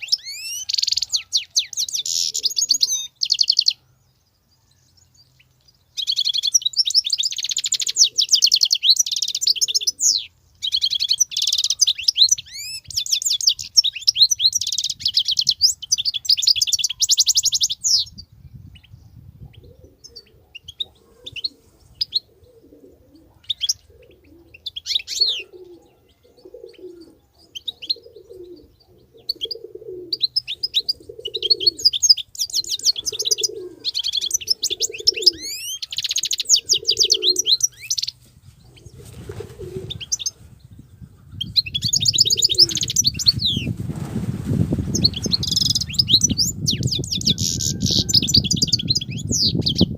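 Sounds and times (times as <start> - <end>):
dove cooing: 0.0 - 3.2, 7.4 - 12.7, 19.4 - 43.7, 44.9 - 48.9
goldfinch twittering song: 4.9 - 18.9, 27.4 - 38.2, 39.9 - 43.7, 44.9 - 49.9.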